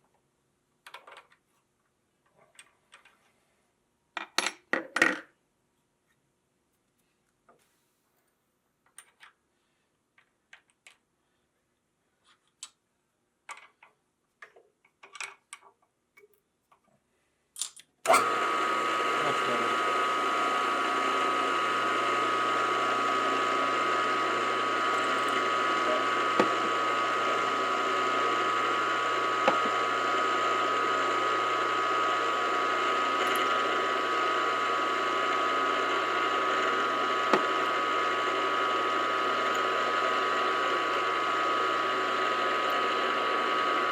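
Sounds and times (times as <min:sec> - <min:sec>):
machine tool whining: 0:18.1 - 0:43.9.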